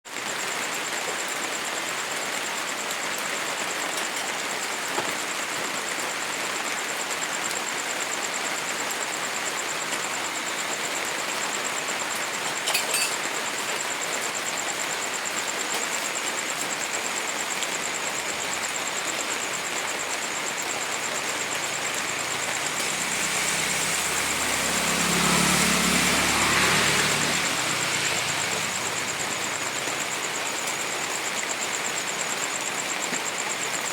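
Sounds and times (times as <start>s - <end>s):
steady rain hiss: 0.1s - 33.9s
road vehicle passing: 22.0s - 29.6s.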